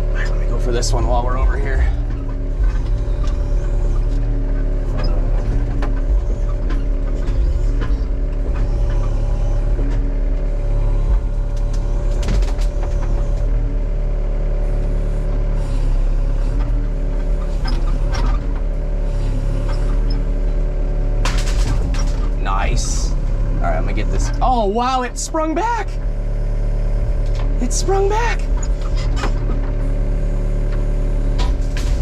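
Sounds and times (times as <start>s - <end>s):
excavator diesel engine under load: 0.0s - 32.0s
sharp cracks and clanks: 21.2s - 23.0s.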